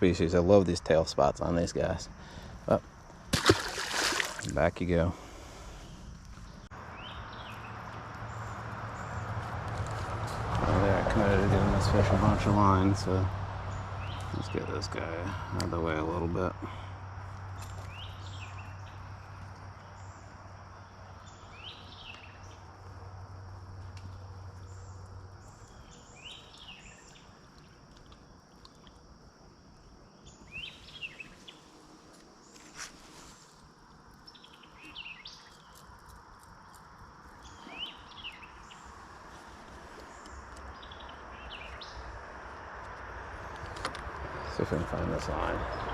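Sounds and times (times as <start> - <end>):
bird chirping: 5.6 - 9.5, 11.6 - 28.8, 30.0 - 31.8, 34.2 - 42.2, 44.4 - 45.9.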